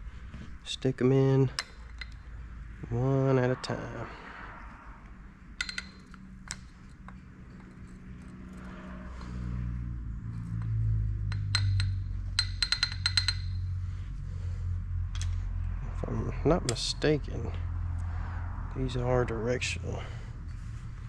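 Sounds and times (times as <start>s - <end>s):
low steady hum: 0.0s - 21.0s
metal lifters clinking: 1.4s - 2.6s, 5.6s - 13.8s.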